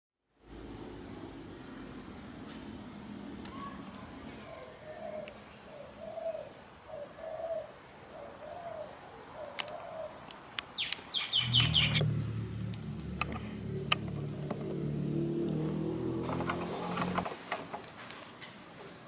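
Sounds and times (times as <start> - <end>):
dove cooing: 4.4 - 10.3, 11.2 - 17.3
high bird chirps: 10.8 - 13.1
low steady hum: 11.4 - 15.4.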